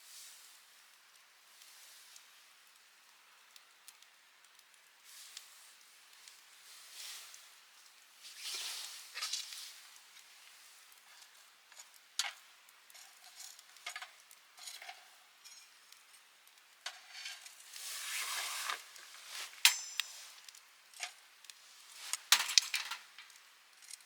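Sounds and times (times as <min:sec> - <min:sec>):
campfire crackling: 0:00.1 - 0:24.0
metallic clink: 0:19.5 - 0:20.4, 0:22.1 - 0:23.3.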